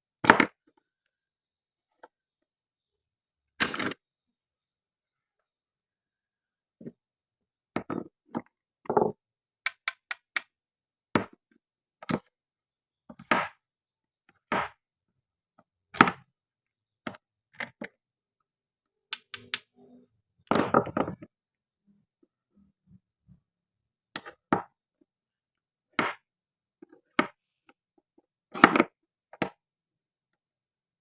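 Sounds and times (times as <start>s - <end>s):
toy food knocks and clicks: 8.9s - 10.6s, 19.1s - 19.8s.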